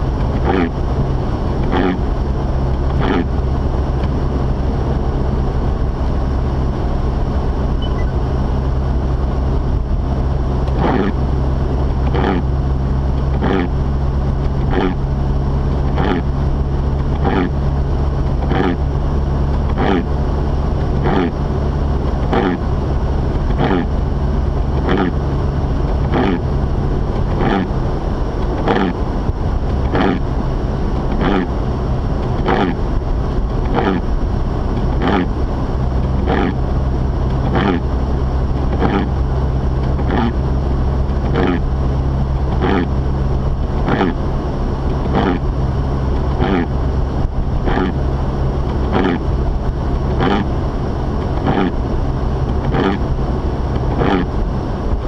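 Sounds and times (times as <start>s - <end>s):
car engine and road drone: 0.0s - 55.0s
windshield wipers swishing: 33.5s - 34.0s, 34.8s - 35.2s, 39.9s - 40.3s, 41.0s - 41.6s, 42.5s - 42.9s, 44.9s - 45.5s, 48.6s - 50.5s, 52.5s - 53.0s, 53.8s - 54.3s.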